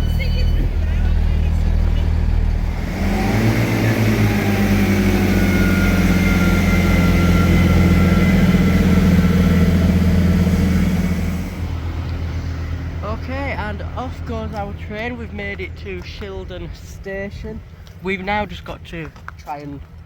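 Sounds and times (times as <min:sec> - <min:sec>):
rising whine: 0:00.0 - 0:14.5
diesel train engine throttling up: 0:00.0 - 0:18.7.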